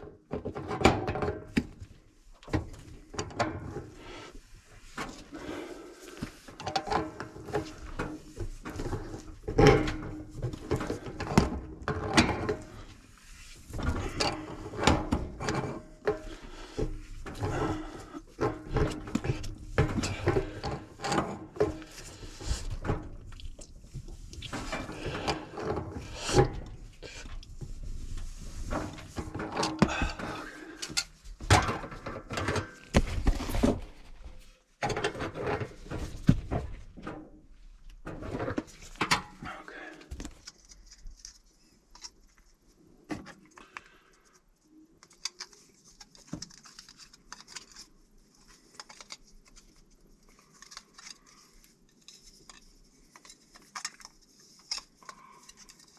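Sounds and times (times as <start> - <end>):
handling knocks and thuds: 31.4 - 37.4, 40.1 - 40.4.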